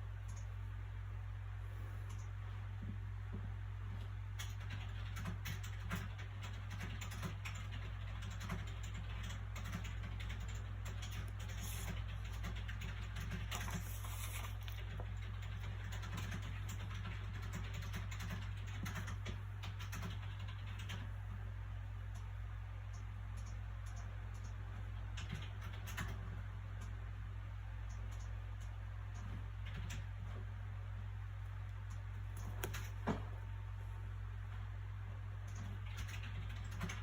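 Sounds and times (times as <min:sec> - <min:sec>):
steady low hum: 0:00.0 - 0:37.0
paper rustles: 0:13.4 - 0:15.1
book pages crinkling: 0:13.5 - 0:15.1.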